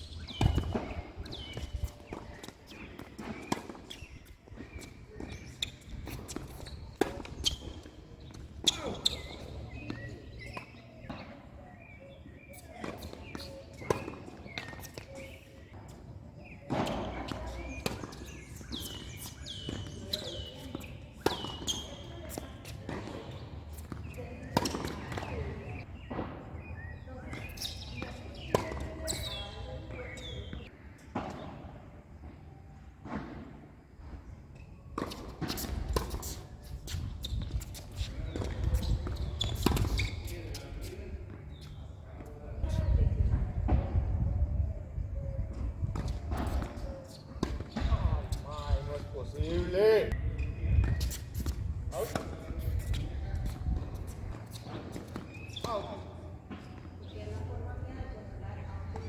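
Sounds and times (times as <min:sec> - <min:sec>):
sneaker squeaks: 0:00.0 - 0:59.0
racket hitting tennis ball: 0:00.2 - 0:11.3
tennis ball hits and bounces: 0:00.2 - 0:26.7, 0:27.3 - 0:31.7, 0:45.9 - 0:48.4.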